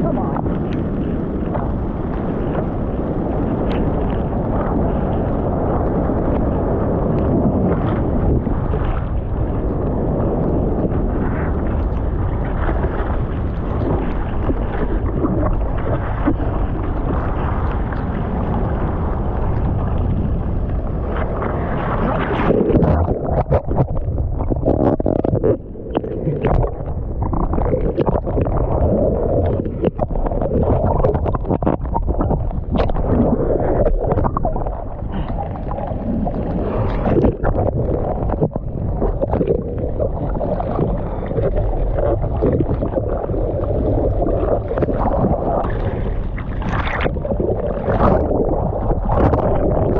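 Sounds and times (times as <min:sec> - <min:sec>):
wind noise on microphone: 0:00.0 - 0:49.9
water sloshing and splashing: 0:10.8 - 0:49.9.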